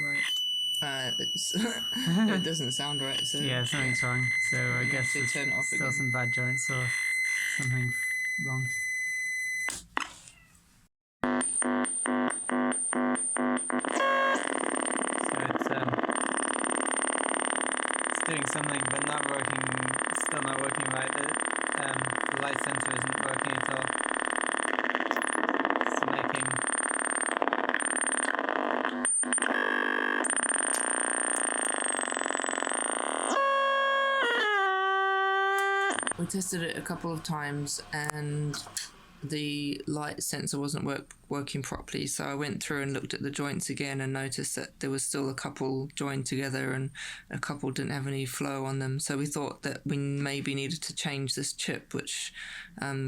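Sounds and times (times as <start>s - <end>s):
high whistle: 0.0s - 8.8s
electronic beeping pulses: 0.0s - 9.7s, 11.3s - 34.9s
steady high electronic tone: 0.0s - 9.7s, 14.0s - 39.4s.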